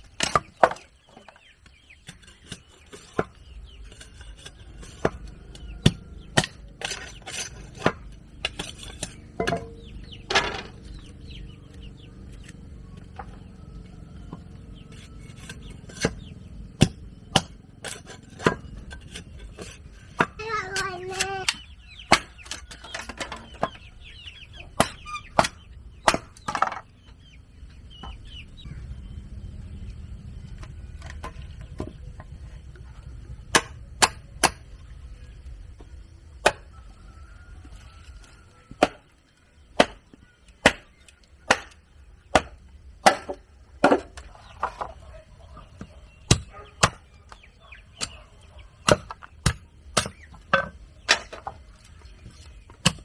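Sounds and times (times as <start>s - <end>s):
chickens clucking: 0.0s - 29.2s, 30.6s - 53.0s
tool striking timber: 4.2s - 10.9s, 15.0s - 23.9s, 24.8s - 26.8s, 33.5s - 34.7s, 36.4s - 36.7s, 38.7s - 39.1s, 39.7s - 44.9s, 45.8s - 48.2s, 48.8s - 51.6s, 52.2s - 53.0s.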